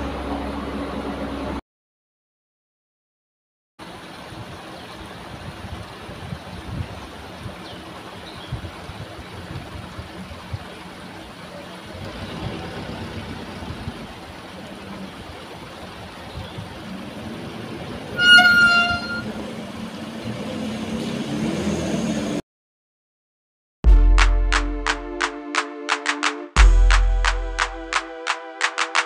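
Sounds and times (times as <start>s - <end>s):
heavy machinery engine running: 10.8s - 16.2s
vehicle horn: 18.2s - 19.4s.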